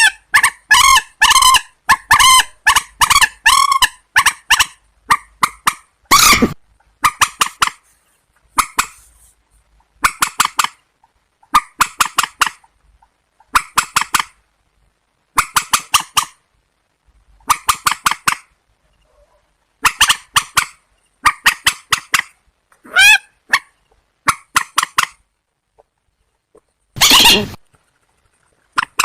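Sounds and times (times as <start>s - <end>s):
water bird calls: 27.0s - 27.6s.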